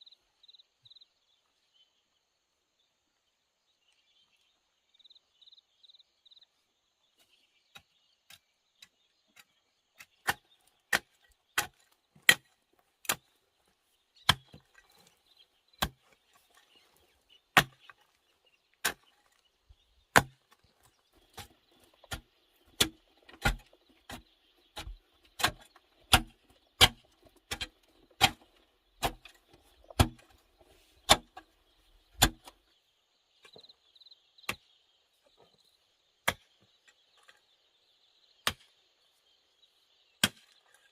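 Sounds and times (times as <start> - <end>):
wood being chopped: 7.7 - 13.3, 14.2 - 14.8, 15.8 - 16.1, 17.5 - 18.0, 18.8 - 19.2, 20.1 - 20.6, 21.3 - 30.4, 31.0 - 31.5, 32.2 - 32.6, 36.2 - 36.6, 38.4 - 38.7, 40.2 - 40.6.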